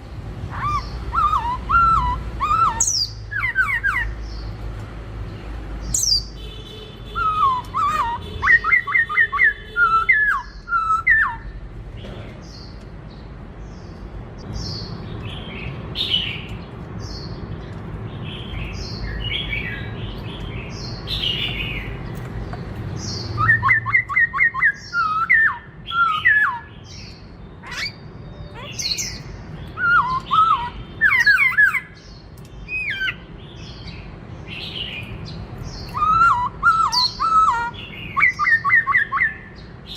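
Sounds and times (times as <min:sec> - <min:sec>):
bird whistled song: 0:00.5 - 0:04.5, 0:05.9 - 0:06.5, 0:07.1 - 0:11.6, 0:23.0 - 0:39.9
soft bird chirps: 0:00.5 - 0:39.9.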